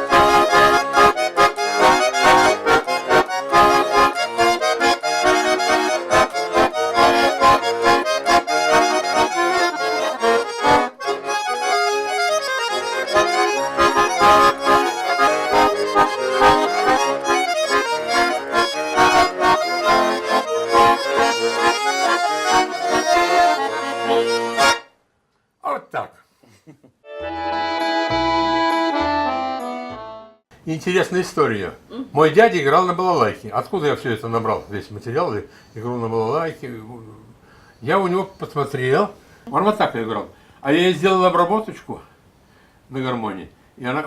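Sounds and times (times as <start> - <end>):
button accordion polka: 0.0 - 24.9, 27.1 - 30.4.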